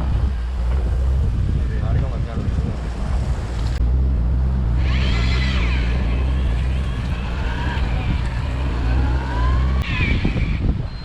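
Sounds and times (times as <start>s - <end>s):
boat engine humming: 0.0s - 9.8s
faint high whine: 3.8s - 11.0s.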